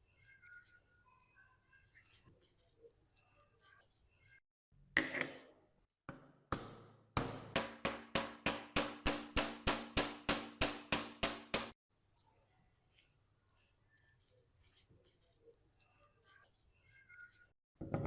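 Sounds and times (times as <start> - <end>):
hammer tapping metal: 6.5 - 11.8.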